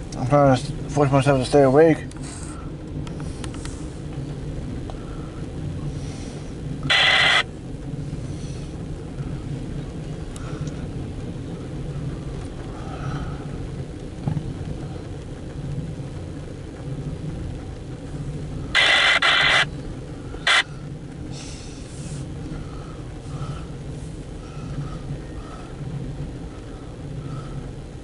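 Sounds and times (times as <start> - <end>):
vehicle engine idling: 0.0 - 28.0
radio scanner static bursts: 6.2 - 7.8, 17.6 - 22.4.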